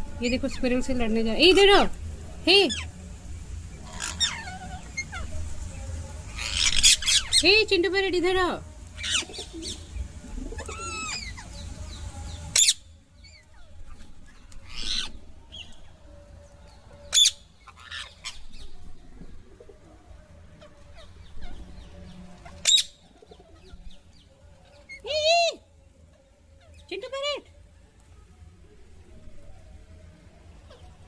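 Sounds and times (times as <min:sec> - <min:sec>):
parrot calling and screeching: 0:03.8 - 0:05.3, 0:06.4 - 0:07.4, 0:10.6 - 0:11.4, 0:12.6 - 0:12.8, 0:14.6 - 0:15.2, 0:22.4 - 0:23.0.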